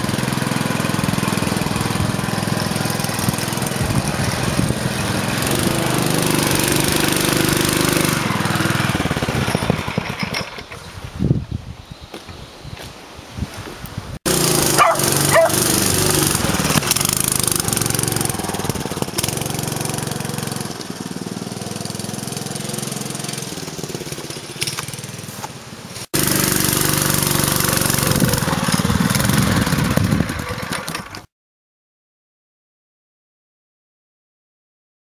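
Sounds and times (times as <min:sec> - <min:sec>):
engine running steadily: 0:00.0 - 0:10.7, 0:14.3 - 0:31.2.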